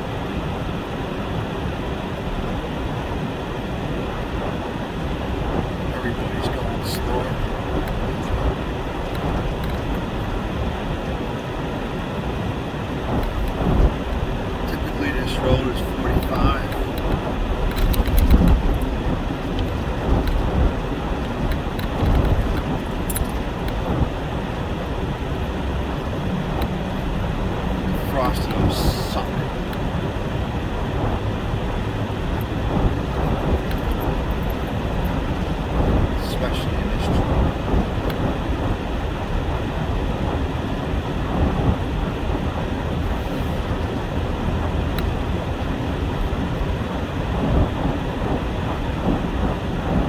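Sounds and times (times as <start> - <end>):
truck rumbling on snowy road: 0.0 - 50.0
faint clicks and rattles: 6.4 - 10.3, 13.1 - 24.2, 24.8 - 29.9, 32.2 - 38.2.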